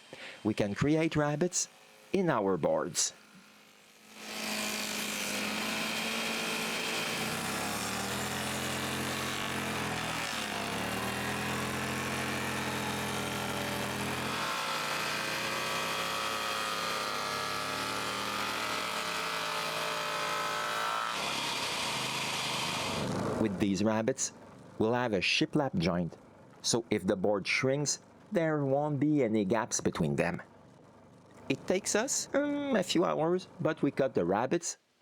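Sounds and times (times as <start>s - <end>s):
power tool cutting wood: 0.0s - 23.6s.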